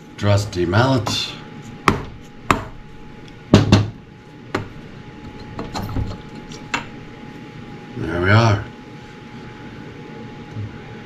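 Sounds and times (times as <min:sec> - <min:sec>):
mallet striking metal part: 0:01.8 - 0:03.8.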